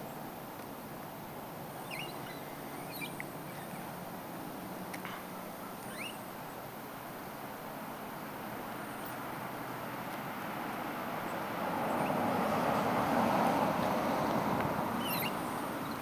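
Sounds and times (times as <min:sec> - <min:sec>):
outdoor background noise: 0:00.0 - 0:16.0
bird chirps: 0:01.7 - 0:03.9, 0:05.8 - 0:06.3, 0:15.0 - 0:16.0.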